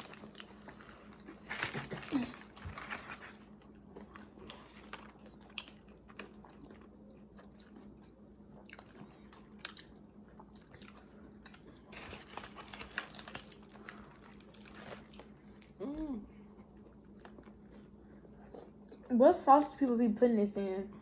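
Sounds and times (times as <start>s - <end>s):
crunching of fried breading: 0.0s - 15.8s
chewing and biting sandwich: 0.0s - 19.1s.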